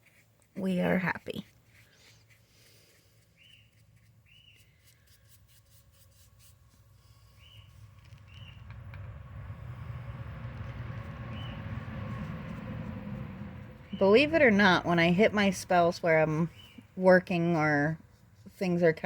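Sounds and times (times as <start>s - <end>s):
paintbrush scratching on concrete: 0.0s - 8.7s, 10.5s - 19.0s
bird chirping: 3.3s - 4.8s, 7.3s - 8.7s, 11.2s - 11.7s, 16.4s - 17.0s
road traffic rumble: 6.8s - 19.0s.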